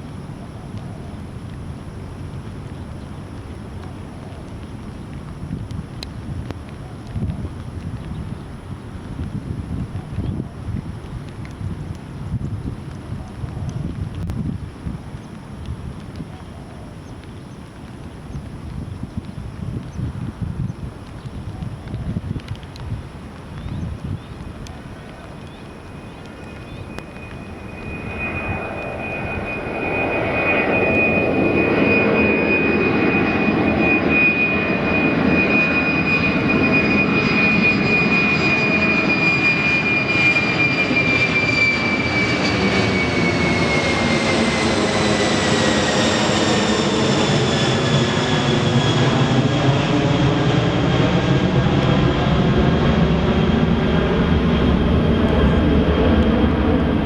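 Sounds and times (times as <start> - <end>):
jet engines whining and roaring: 24.0 - 57.0.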